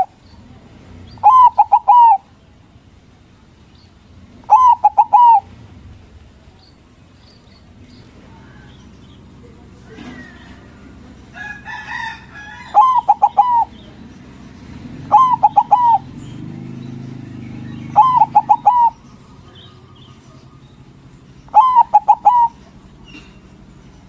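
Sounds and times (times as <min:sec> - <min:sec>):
dove cooing ringing notes: 0:01.1 - 0:02.3, 0:04.4 - 0:05.6, 0:11.3 - 0:13.9, 0:14.9 - 0:23.4.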